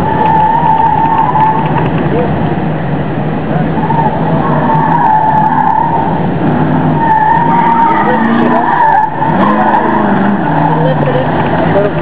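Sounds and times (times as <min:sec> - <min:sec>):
tyres squealing: 0:00.0 - 0:02.4, 0:03.5 - 0:12.0.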